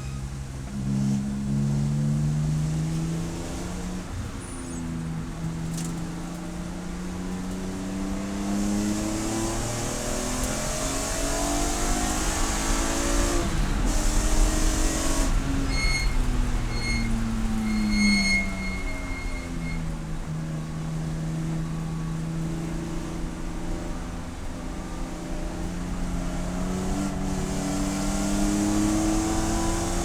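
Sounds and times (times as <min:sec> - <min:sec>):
race car engine pulling hard: 0:00.0 - 0:30.0
high-pitched beep: 0:15.7 - 0:19.9.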